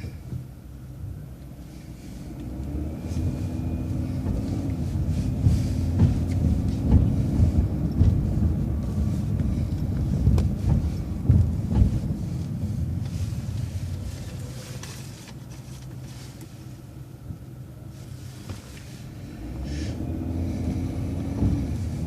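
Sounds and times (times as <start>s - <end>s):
bus engine running: 0.0s - 22.0s
road rumble: 0.0s - 22.0s
knocks and rattles: 4.0s - 12.4s.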